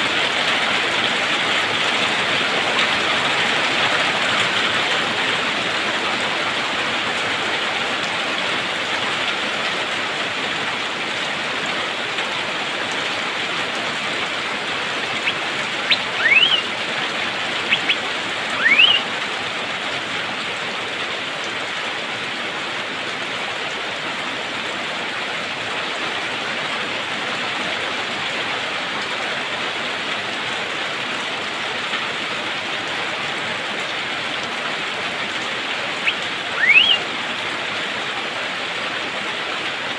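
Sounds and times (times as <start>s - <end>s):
rain hiss: 0.0s - 39.9s
bird whistled calls: 15.2s - 16.8s, 17.6s - 19.1s, 36.0s - 37.1s.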